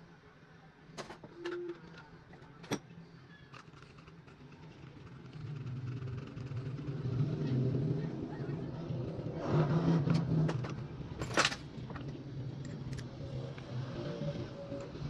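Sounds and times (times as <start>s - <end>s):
vehicle engine humming: 4.1s - 15.0s.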